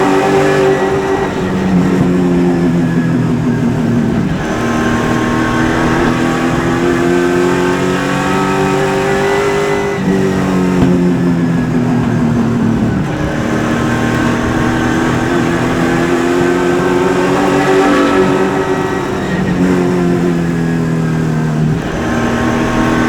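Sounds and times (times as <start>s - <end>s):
race car engine revving: 0.0s - 23.0s.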